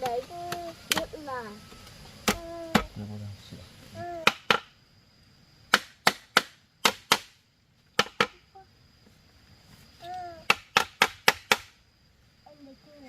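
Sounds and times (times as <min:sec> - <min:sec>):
tool striking wood: 0:04.2 - 0:04.7, 0:05.7 - 0:07.3, 0:08.0 - 0:08.3, 0:10.5 - 0:11.7.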